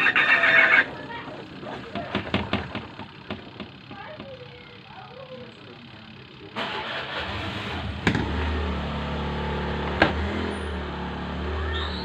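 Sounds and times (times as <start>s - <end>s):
spin-dryer motor humming: 0.0s - 6.6s.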